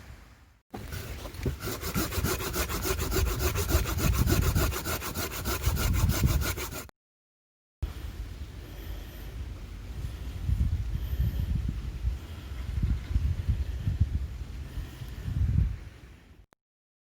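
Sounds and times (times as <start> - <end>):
hand saw cutting wood: 0.8 - 6.9.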